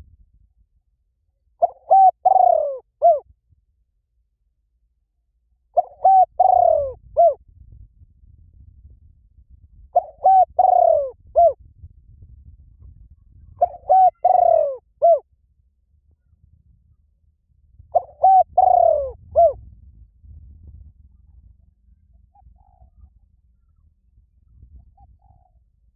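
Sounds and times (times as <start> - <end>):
dove cooing: 1.6 - 3.2, 5.8 - 7.4, 10.0 - 11.6, 13.6 - 15.2, 17.9 - 19.6, 22.3 - 23.2, 24.8 - 25.6.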